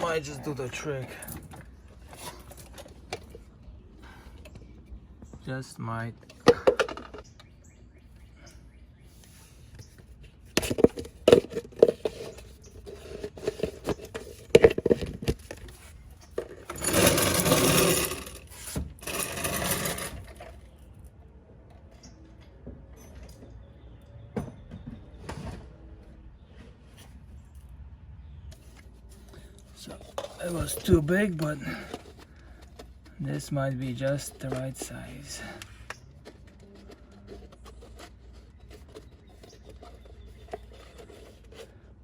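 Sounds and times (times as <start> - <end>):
container clattering: 10.6 - 20.6.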